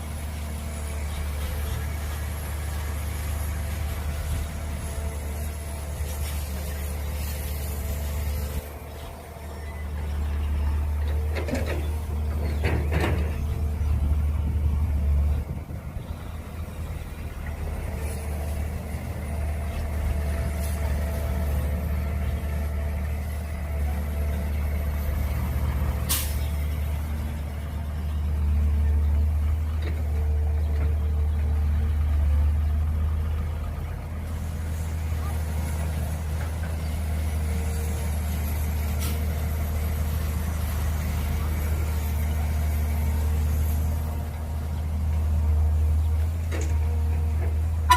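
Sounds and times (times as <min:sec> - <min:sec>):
excavator diesel engine working: 0:00.0 - 0:47.9.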